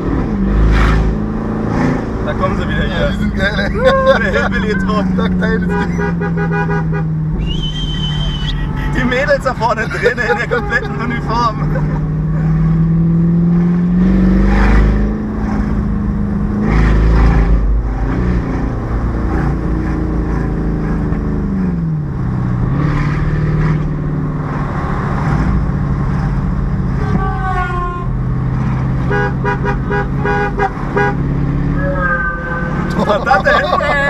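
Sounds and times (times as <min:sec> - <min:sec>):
car engine revving: 0:00.0 - 0:27.1, 0:28.1 - 0:34.0
car horns honking: 0:02.6 - 0:12.1, 0:29.0 - 0:34.0.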